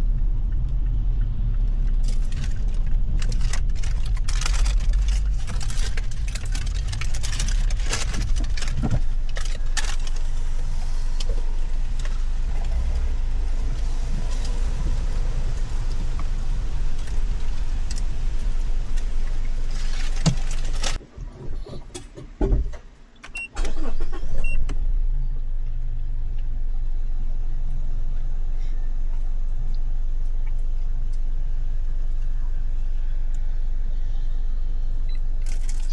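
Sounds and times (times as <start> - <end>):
car engine rumble: 0.0 - 35.9
thumps: 19.8 - 22.9.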